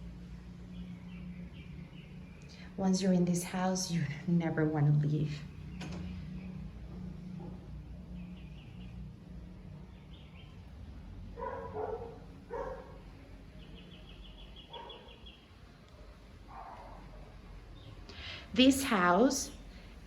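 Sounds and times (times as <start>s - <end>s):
birds trilling: 0.0s - 19.8s
steady low hum: 0.0s - 20.0s
dog barking: 11.4s - 13.1s, 14.7s - 15.3s, 16.5s - 17.3s.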